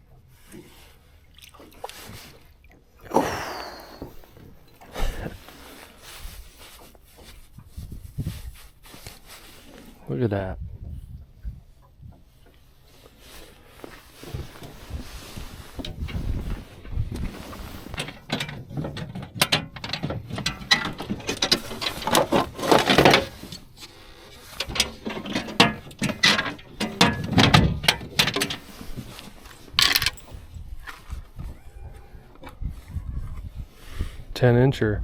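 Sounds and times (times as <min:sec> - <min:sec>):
fishing reel clicking: 0:29.8 - 0:30.2
sharp click: 0:29.8 - 0:30.3.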